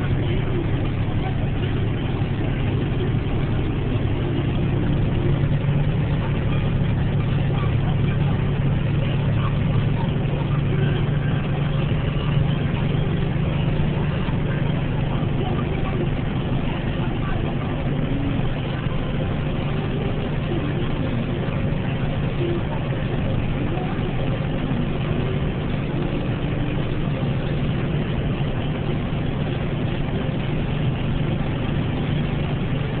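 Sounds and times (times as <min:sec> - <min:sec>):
car engine and tyre noise: 0:00.0 - 0:33.0.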